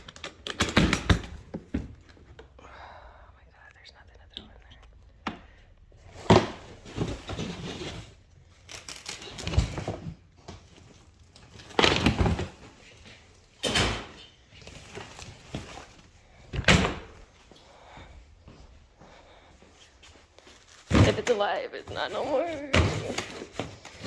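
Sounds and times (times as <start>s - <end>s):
rustling: 5.9s - 13.6s, 17.1s - 24.0s
knocks and thuds of containers: 6.1s - 7.9s.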